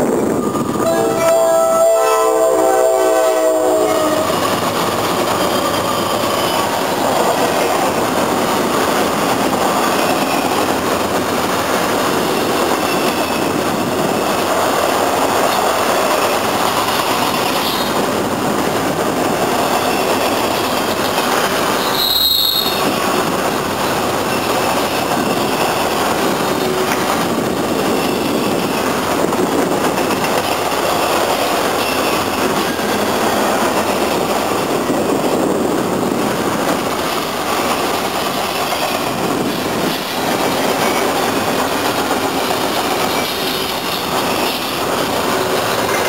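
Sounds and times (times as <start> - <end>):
train wheels rolling on rails: 2.8 - 46.0
high wheel squeals: 21.8 - 22.9.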